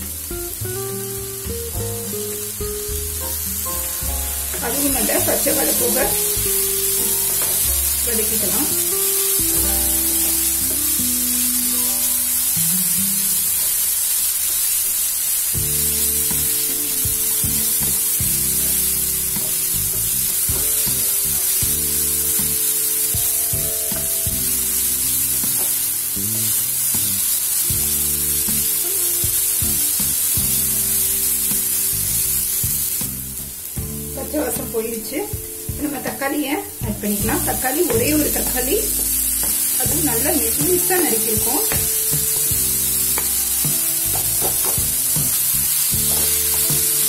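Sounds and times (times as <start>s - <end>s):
background music with low notes: 0.0s - 13.6s, 15.6s - 47.0s
onions sizzling in hot oil: 0.0s - 47.0s
spatula stirring in pan: 37.6s - 47.0s.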